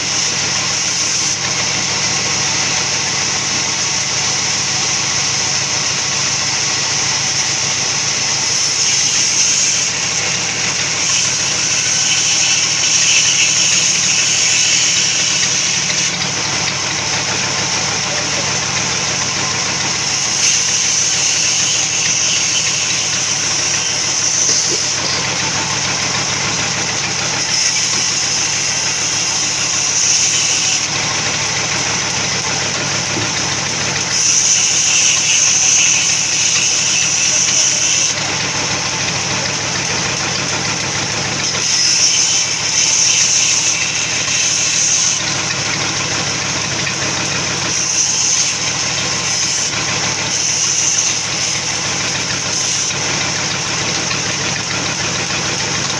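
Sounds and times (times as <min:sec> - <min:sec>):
sawmill motor drone: 0:00.0 - 0:55.9
high hissing whine: 0:08.8 - 0:33.2.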